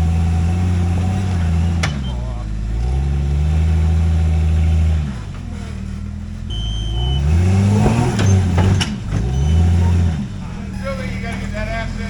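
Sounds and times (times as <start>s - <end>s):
engine revving under load: 0.0s - 12.0s
sharp knocks: 7.7s - 9.3s.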